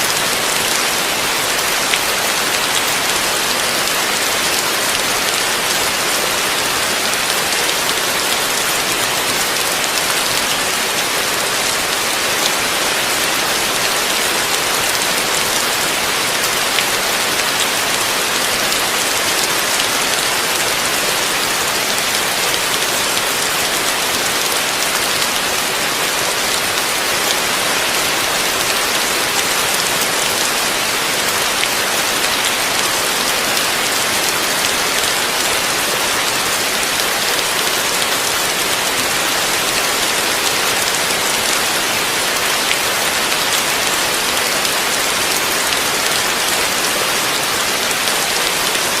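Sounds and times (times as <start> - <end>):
heavy rain falling: 0.0 - 49.0.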